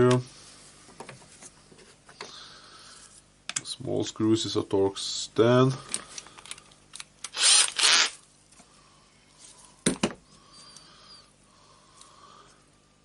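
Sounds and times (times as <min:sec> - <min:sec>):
screwdriver scraping screws: 0:07.2 - 0:08.2.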